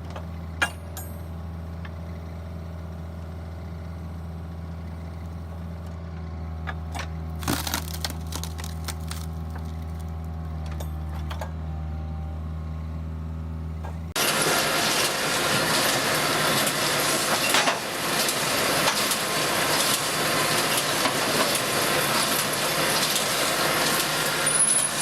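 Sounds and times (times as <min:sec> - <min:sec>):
log splitter humming: 0:00.0 - 0:25.0
log cracking apart: 0:07.3 - 0:10.4.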